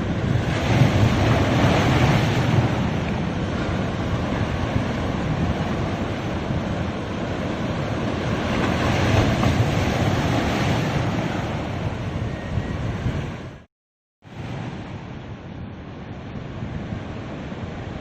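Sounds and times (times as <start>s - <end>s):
wind buffeting microphone: 0.0s - 13.7s
ocean waves washing onto beach: 0.0s - 18.0s.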